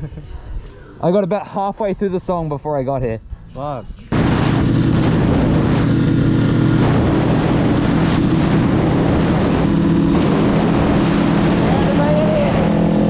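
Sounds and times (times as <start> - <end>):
motorcycle engine running: 4.0 - 13.0.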